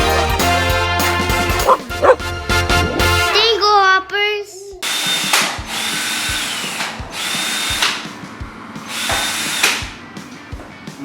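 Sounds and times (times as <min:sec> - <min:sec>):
power drill whirring: 0:04.8 - 0:08.2, 0:08.8 - 0:10.0.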